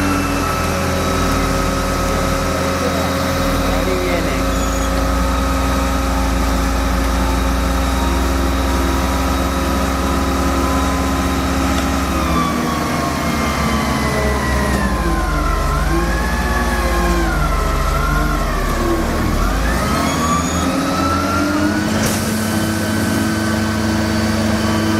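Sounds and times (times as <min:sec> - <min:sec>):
heavy engine running: 0:00.0 - 0:24.9
wailing siren: 0:07.4 - 0:22.0.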